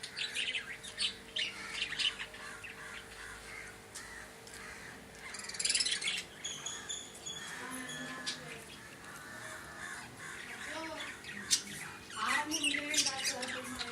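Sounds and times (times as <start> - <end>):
bird chirps and squawks: 5.2 - 13.9.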